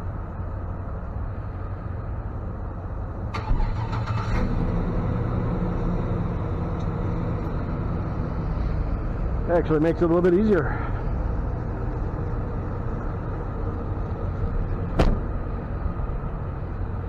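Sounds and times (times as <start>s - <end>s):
truck engine running: 0.1s - 17.0s
sharp clunk: 14.9s - 15.6s.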